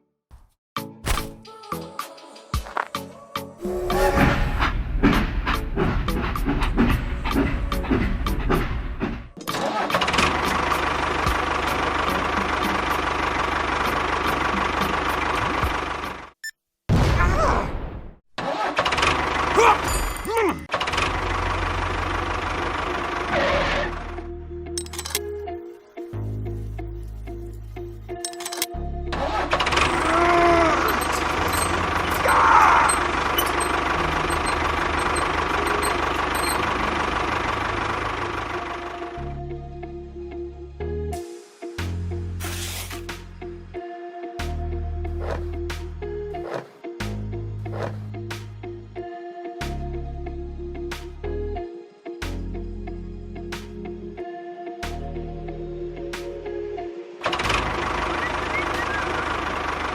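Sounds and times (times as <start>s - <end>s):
small motor running: 29.7s - 38.4s.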